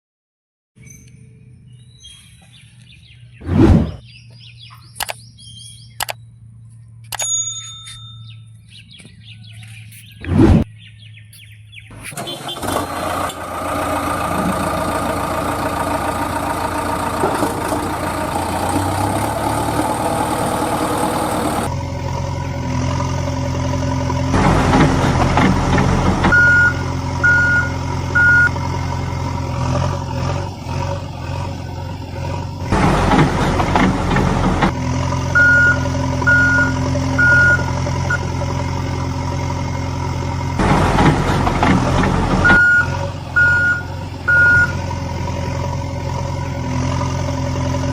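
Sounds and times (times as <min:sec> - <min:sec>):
heavy vehicle engine running: 0:02.5 - 0:07.2, 0:08.2 - 0:47.9
reversing alarm beeping: 0:26.3 - 0:28.6, 0:35.4 - 0:38.4, 0:42.4 - 0:44.8.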